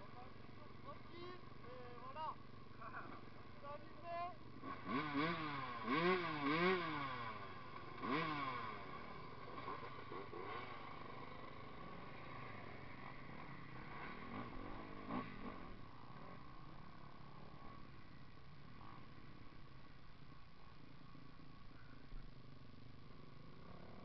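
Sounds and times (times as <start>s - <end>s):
motocross bike engine revving: 0.0s - 19.9s, 22.5s - 24.0s.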